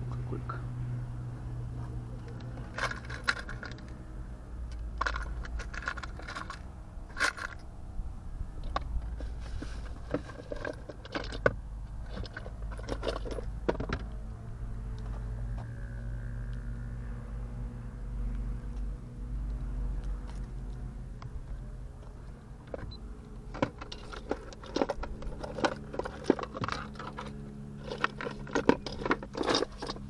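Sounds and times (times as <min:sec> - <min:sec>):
steady low hum: 0:00.0 - 0:30.0
small hard parts clicking and rattling: 0:02.2 - 0:07.8, 0:08.6 - 0:14.2, 0:20.1 - 0:30.0.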